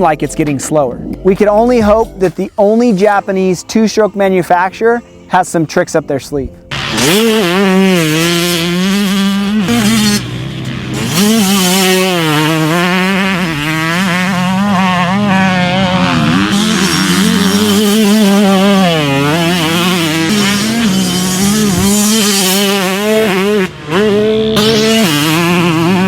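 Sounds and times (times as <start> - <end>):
two-stroke motorcycle engine revving: 6.7 - 26.0.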